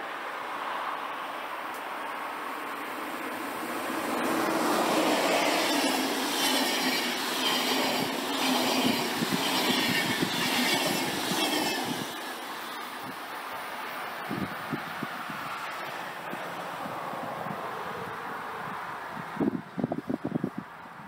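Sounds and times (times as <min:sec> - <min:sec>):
train wheel and rail noise: 0:00.0 - 0:20.9
wheel squeal and clatter: 0:05.2 - 0:12.9.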